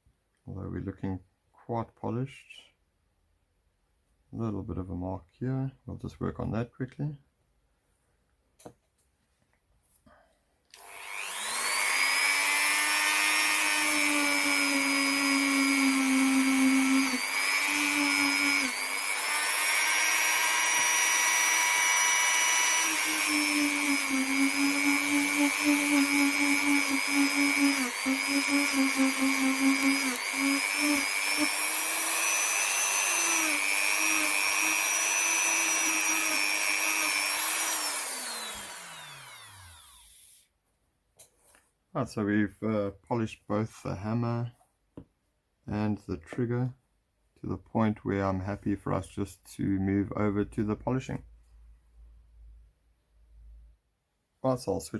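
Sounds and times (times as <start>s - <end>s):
rotary tool grinding steel: 10.8s - 40.4s.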